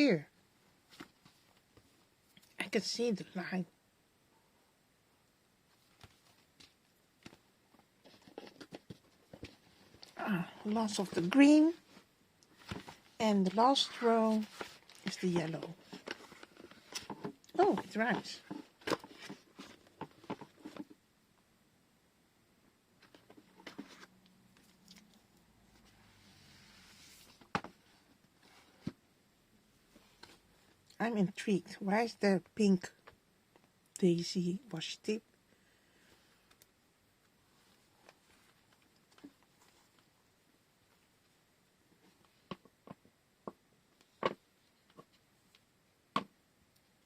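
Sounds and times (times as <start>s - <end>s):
soft hiss: 0.3s - 31.6s.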